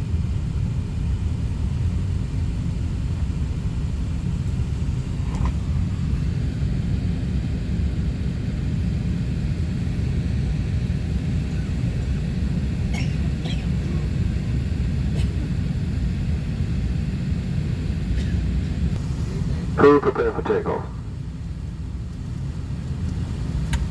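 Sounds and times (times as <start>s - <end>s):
airliner cabin rumble: 0.0s - 23.9s.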